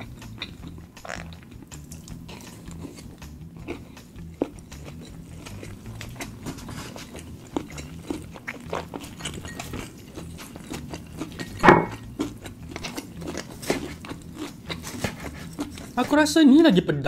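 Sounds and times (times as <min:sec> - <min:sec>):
wet chewing clicks and smacks: 0:00.0 - 0:16.0
loud mouth noise: 0:01.0 - 0:01.6.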